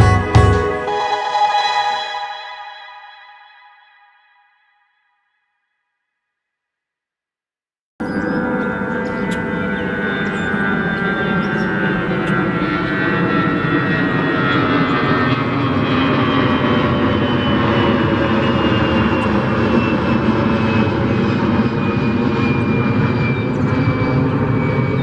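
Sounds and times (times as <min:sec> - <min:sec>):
airplane engine drone: 0:08.3 - 0:25.0.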